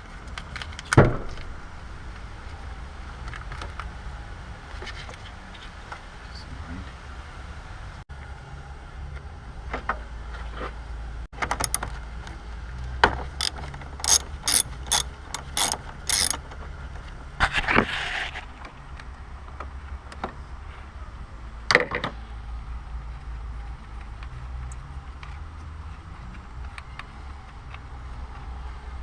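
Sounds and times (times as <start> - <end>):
ratchet wrench strokes: 11.6 - 11.8, 13.4 - 16.4.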